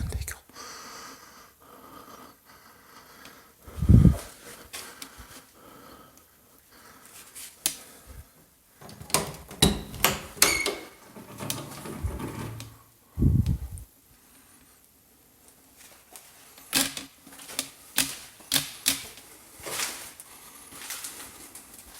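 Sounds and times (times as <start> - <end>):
sharp clicks and knocks: 8.8 - 12.8.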